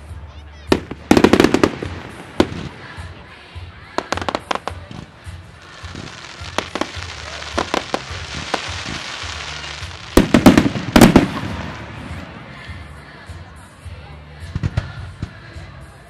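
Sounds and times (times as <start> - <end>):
fireworks hiss: 0.7 - 12.8
firework sharp reports: 0.7 - 12.9
loud firework shell bursts: 5.8 - 12.1.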